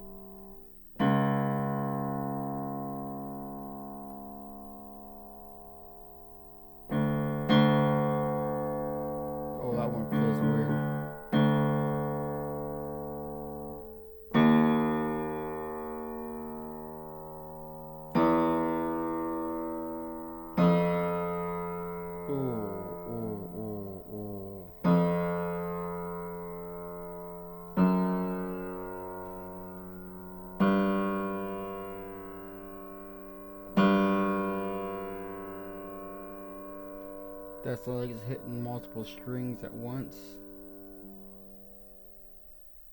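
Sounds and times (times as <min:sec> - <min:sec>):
piano notes ringing out: 0:06.4 - 0:40.4.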